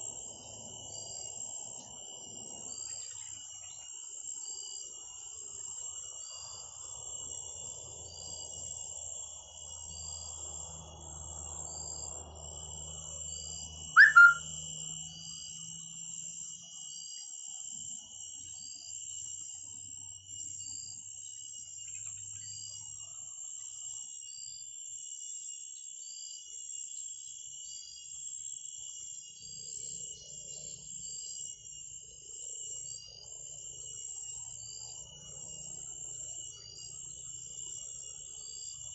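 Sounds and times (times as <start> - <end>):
insects trilling: 0.0 - 38.9
sharp bird call: 14.0 - 14.4
small bird chirping: 14.0 - 14.4.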